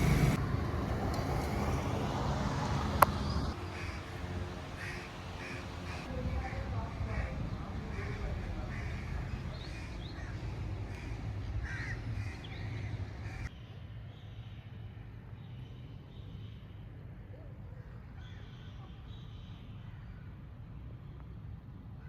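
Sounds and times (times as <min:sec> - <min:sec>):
crows cawing: 0:03.6 - 0:06.1, 0:07.1 - 0:13.5.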